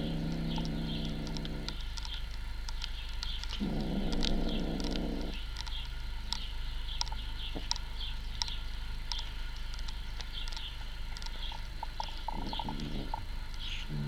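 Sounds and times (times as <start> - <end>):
low hum: 0.0 - 14.0
small bird cheeping: 10.3 - 14.0.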